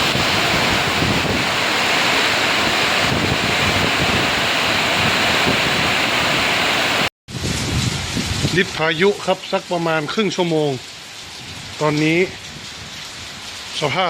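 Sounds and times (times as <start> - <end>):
wind buffeting microphone: 0.0 - 9.0
heavy rain: 0.0 - 14.0.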